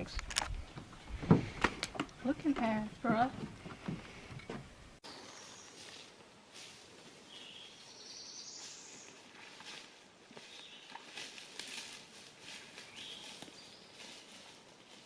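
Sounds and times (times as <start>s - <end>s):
birds chirping: 0.0s - 6.2s, 7.2s - 9.3s, 10.4s - 11.1s, 12.7s - 14.3s
soft steady hiss: 0.0s - 15.0s.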